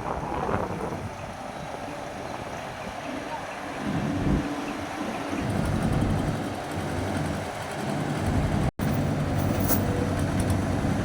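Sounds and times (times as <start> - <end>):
excavator diesel engine running: 4.8 - 11.0.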